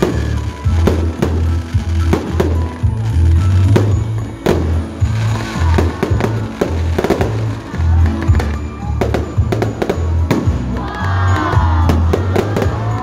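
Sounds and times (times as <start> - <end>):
fireworks cracking and banging: 0.0 - 13.0
loud music with heavy bass: 0.0 - 13.0
crowd shouting: 5.2 - 8.7, 10.6 - 13.0.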